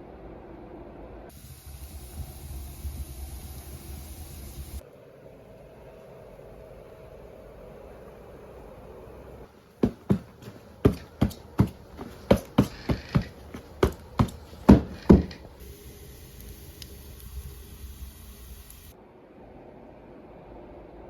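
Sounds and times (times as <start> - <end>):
steady hiss: 1.3 - 5.0, 9.6 - 19.0.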